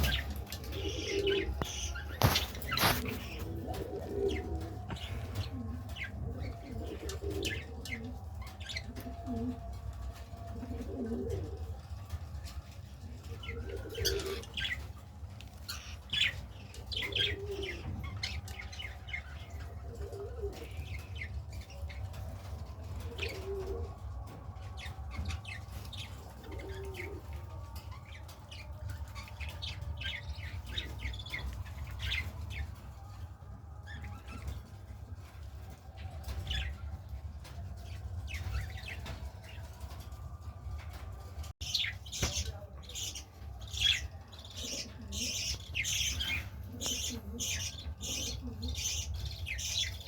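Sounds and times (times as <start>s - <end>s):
wing flapping: 0.0s - 4.3s
pigeons cooing: 0.0s - 50.0s.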